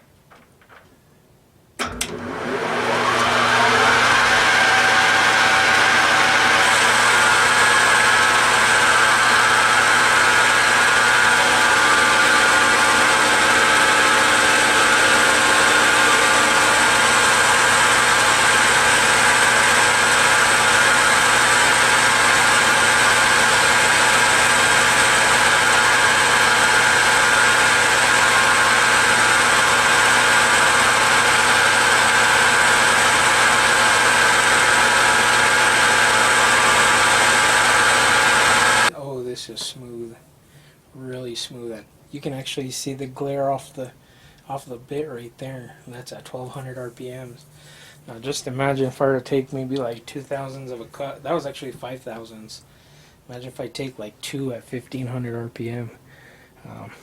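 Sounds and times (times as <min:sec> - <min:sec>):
metal lathe whining: 0:01.8 - 0:38.9
tool cutting metal: 0:01.8 - 0:38.9.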